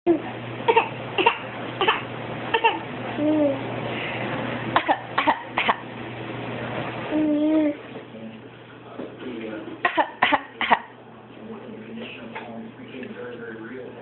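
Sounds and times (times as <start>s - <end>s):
baby cooing: 0.1s - 2.0s, 2.6s - 3.6s, 7.1s - 7.8s.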